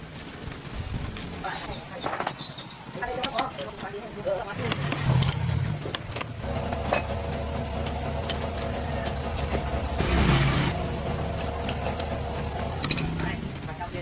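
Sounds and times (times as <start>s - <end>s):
diesel engine running: 4.9s - 14.0s.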